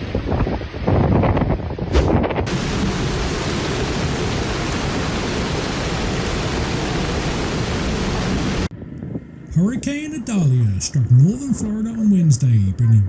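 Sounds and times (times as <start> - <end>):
wind and driving rain: 0.0 - 8.7.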